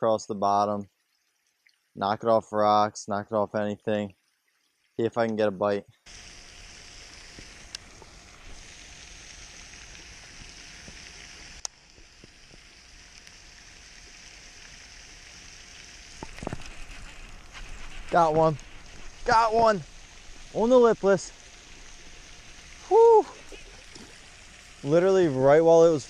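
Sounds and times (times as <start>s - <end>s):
hiss of falling wintry mix: 6.1s - 26.0s.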